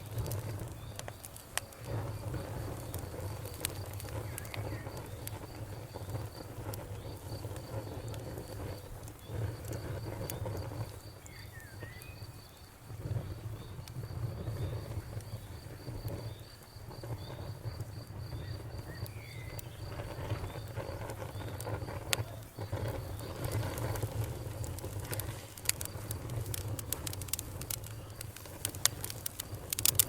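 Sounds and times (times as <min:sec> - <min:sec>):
campfire crackling and popping: 0:00.0 - 0:30.0
crickets chirping: 0:00.0 - 0:30.0.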